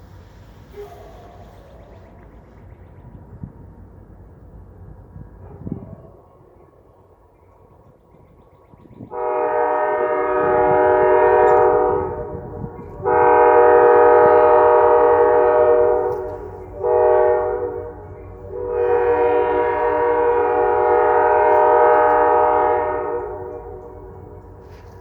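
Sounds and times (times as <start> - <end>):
train rumble: 0.0 - 25.0
locomotive air horn blasts: 9.1 - 25.0.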